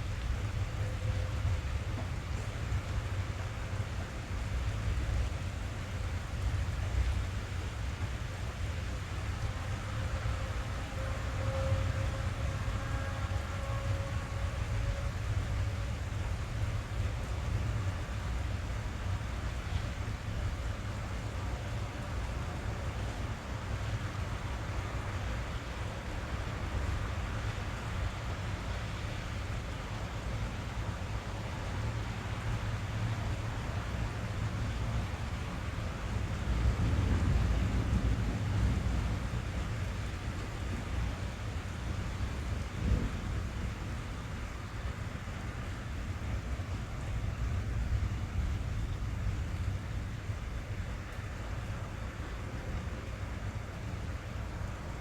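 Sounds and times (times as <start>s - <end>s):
deep continuous rumble: 0.0s - 55.0s
rain drumming on car roof: 0.0s - 55.0s.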